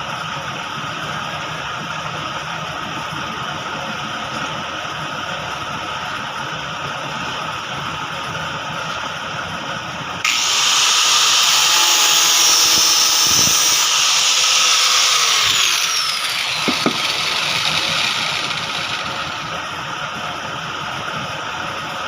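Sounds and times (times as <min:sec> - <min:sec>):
power tool motor whining: 0:10.2 - 0:19.7.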